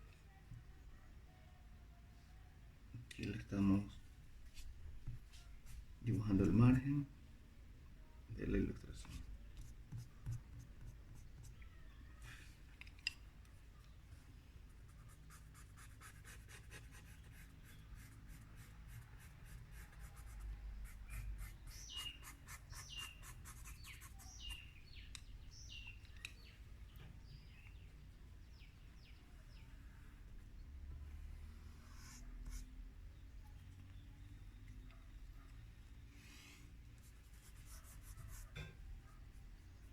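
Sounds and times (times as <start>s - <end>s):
stick scratching on paper: 15.0s - 24.6s, 37.1s - 38.6s.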